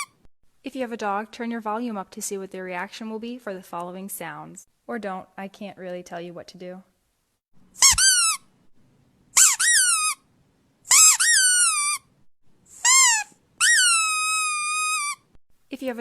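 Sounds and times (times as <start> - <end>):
rubber squeaky dog toy squeaking: 0.0 - 0.2, 7.8 - 8.5, 9.3 - 10.3, 10.9 - 12.1, 12.7 - 15.4.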